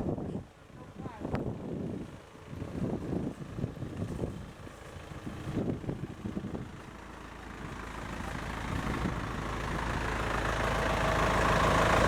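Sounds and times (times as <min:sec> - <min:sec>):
engine running: 0:02.0 - 0:12.0.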